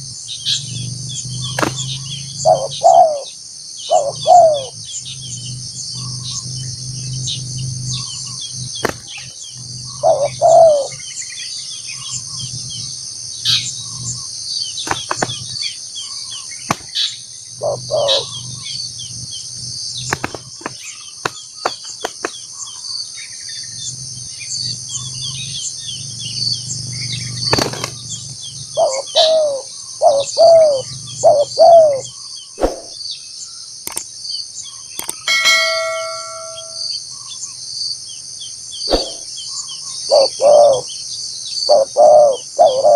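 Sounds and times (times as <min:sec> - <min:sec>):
doves cooing: 0:00.0 - 0:11.2, 0:11.9 - 0:22.9, 0:23.7 - 0:33.0, 0:38.9 - 0:41.0, 0:41.6 - 0:42.9
cicadas and crickets droning: 0:00.0 - 0:42.9
sharp clicks: 0:33.8 - 0:34.1, 0:35.0 - 0:35.3.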